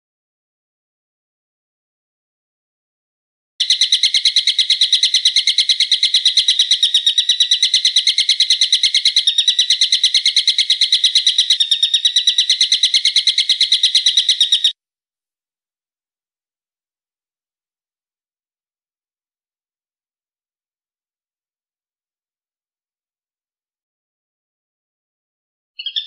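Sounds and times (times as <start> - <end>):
bird chattering call: 3.6 - 14.7, 25.8 - 26.0.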